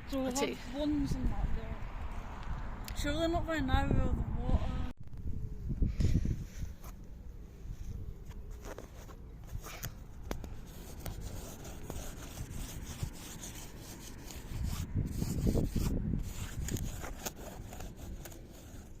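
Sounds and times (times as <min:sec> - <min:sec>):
rubbing and scraping: 0:08.2 - 0:19.0.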